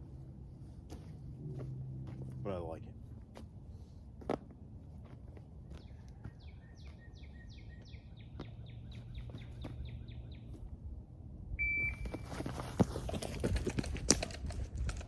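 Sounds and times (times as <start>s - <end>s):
songbird chirping: 5.4s - 11.0s
shot timer beep: 11.6s - 12.2s.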